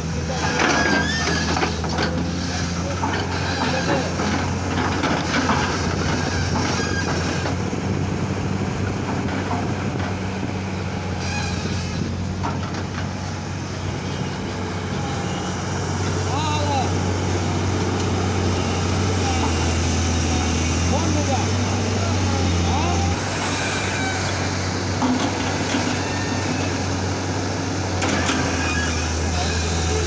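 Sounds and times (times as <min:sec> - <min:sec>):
diesel engine running: 0:00.0 - 0:30.0
clanks and rattles: 0:00.3 - 0:07.8, 0:11.2 - 0:13.5, 0:22.8 - 0:30.0.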